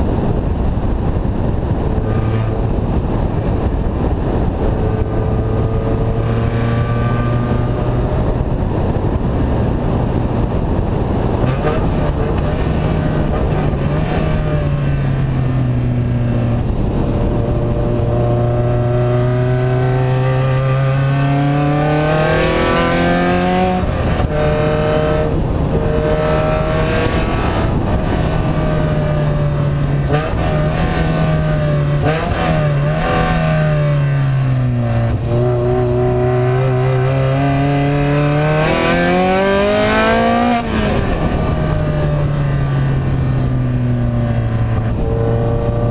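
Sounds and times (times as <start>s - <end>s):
vehicle engine revving: 0.7s - 45.9s.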